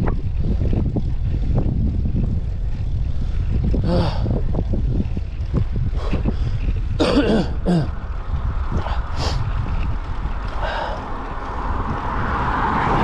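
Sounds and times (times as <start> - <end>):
wind buffeting microphone: 0.0 - 13.0
breathy vocal sounds: 3.8 - 4.3.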